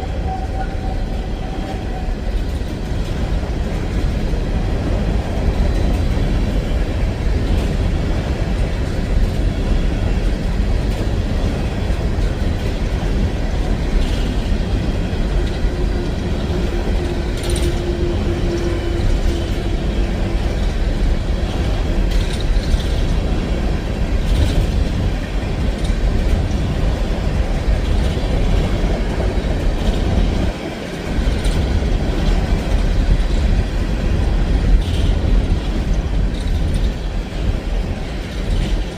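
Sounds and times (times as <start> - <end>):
train cars rumbling: 0.0 - 38.9
wheels clicking over rail joints: 0.1 - 38.9.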